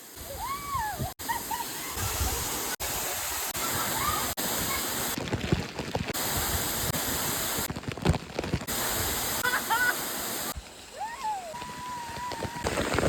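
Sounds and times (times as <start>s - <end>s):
waterfall roaring: 8.7s - 10.6s.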